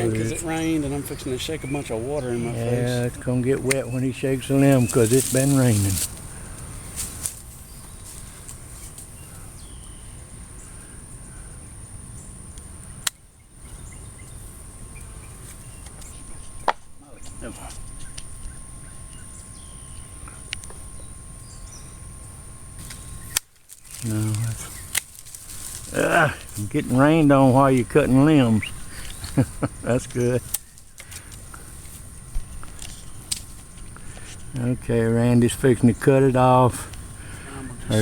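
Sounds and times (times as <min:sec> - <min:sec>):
low outdoor background: 0:00.0 - 0:38.0
tree limbs snapping: 0:04.6 - 0:07.5, 0:22.8 - 0:26.7.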